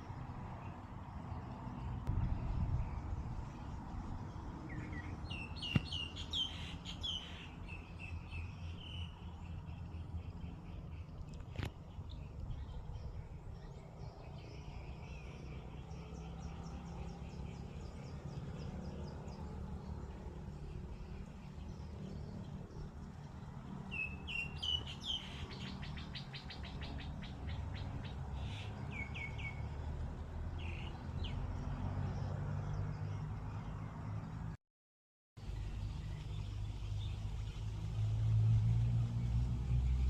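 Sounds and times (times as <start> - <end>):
steady low rumble: 2.0 - 4.6
small birds chirping: 2.8 - 29.8.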